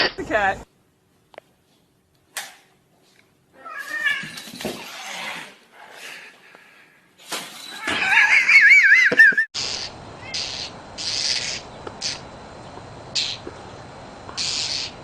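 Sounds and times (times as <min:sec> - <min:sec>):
high wavering animal cry: 0:07.7 - 0:12.2.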